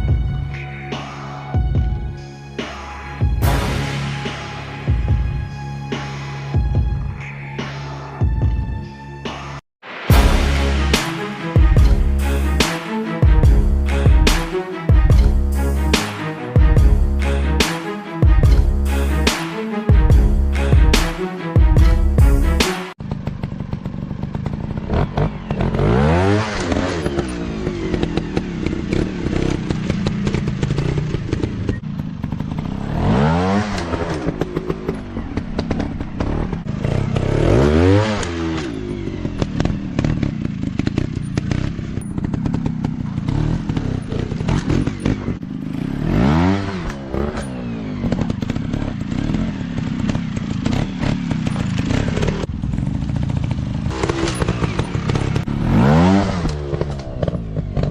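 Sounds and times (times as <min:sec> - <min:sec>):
dirt bike engines revving: 0:23.1 - 0:57.9.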